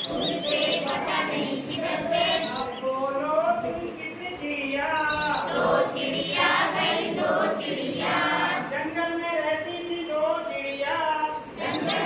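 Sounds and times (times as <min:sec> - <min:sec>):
group singing in unison: 0:00.0 - 0:03.8, 0:05.0 - 0:09.0, 0:11.6 - 0:12.0.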